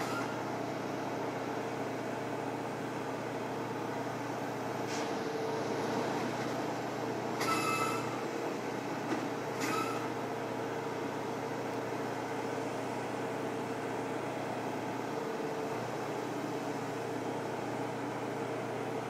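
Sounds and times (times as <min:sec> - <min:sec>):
short high-pitched squeal: 0:00.0 - 0:00.4, 0:07.4 - 0:08.2, 0:09.6 - 0:10.1
train humming idle: 0:00.0 - 0:19.0.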